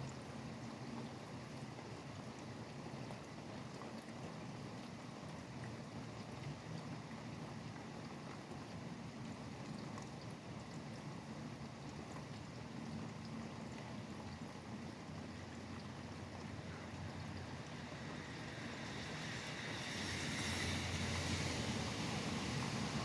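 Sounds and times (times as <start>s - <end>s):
steady rain: 0.0s - 23.0s
traffic hiss: 16.0s - 23.0s
vehicle passing: 17.0s - 23.0s.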